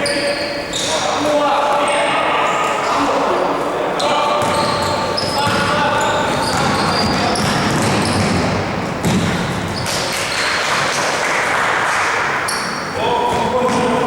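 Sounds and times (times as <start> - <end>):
shoe squeaks: 0.0 - 3.2, 4.0 - 10.9, 12.4 - 14.0
echoing hall noise: 0.0 - 14.0
basketball bouncing: 4.4 - 11.0, 13.3 - 14.0.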